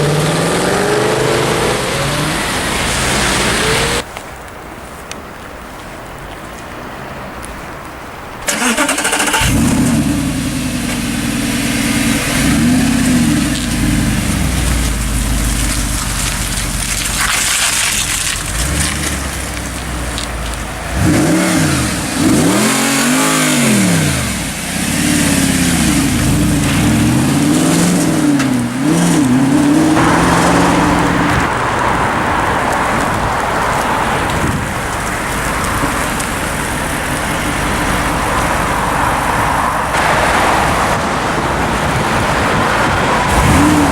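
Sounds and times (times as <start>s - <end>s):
sports car engine revving: 0.0s - 4.0s, 8.9s - 32.2s, 43.3s - 43.9s.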